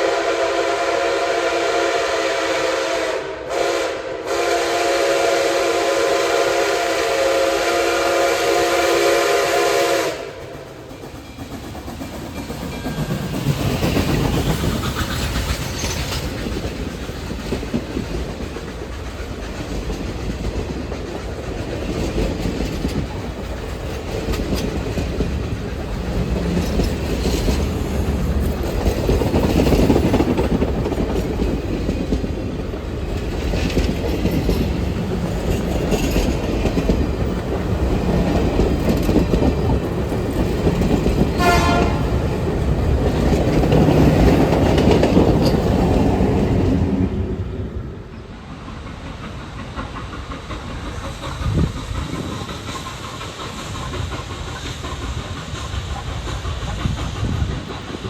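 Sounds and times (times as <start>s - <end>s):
train wheels clattering: 4.9s - 58.0s
train signal blast: 41.4s - 42.2s.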